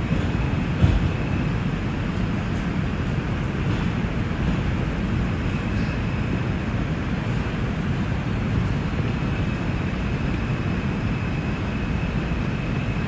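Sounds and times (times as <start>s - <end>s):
subway train wheels rumbling: 0.0s - 13.0s.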